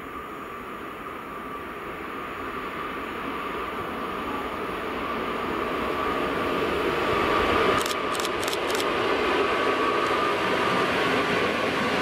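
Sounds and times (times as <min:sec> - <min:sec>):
train wheels rumbling on rails: 0:01.5 - 0:12.0
sharp clicks: 0:07.8 - 0:08.9.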